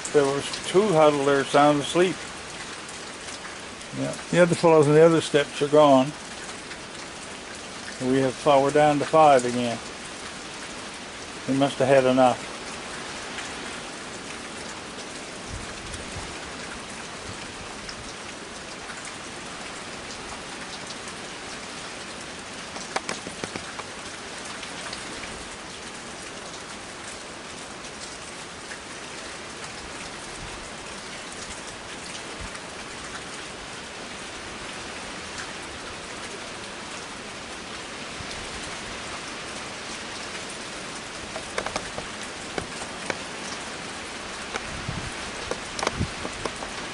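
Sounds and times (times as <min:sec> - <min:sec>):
steady rain falling: 0:00.0 - 0:46.9
sharp knocks: 0:22.7 - 0:23.9, 0:41.3 - 0:43.3.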